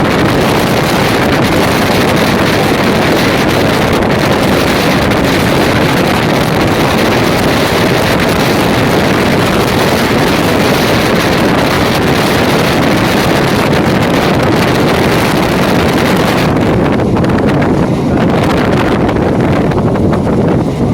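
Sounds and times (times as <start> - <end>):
moving train rushing: 0.0 - 20.9
wind buffeting microphone: 0.0 - 20.9.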